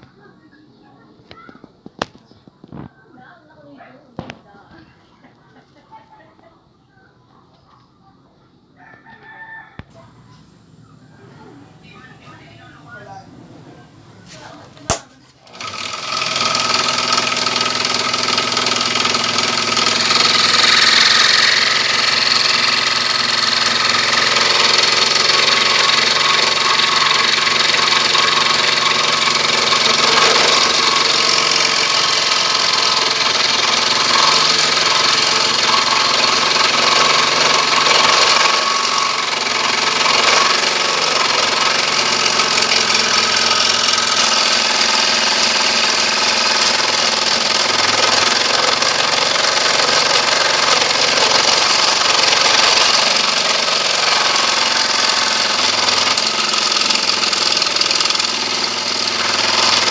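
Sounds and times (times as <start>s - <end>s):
electric scroll saw running: 14.9s - 59.9s.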